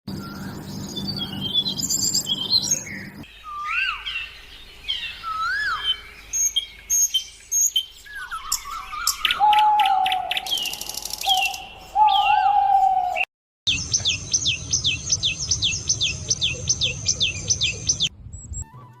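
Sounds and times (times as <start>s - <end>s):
birds whistling: 0.1s - 18.6s
long steady bird whistle: 0.2s - 18.1s
bird rattling trill: 10.5s - 11.7s.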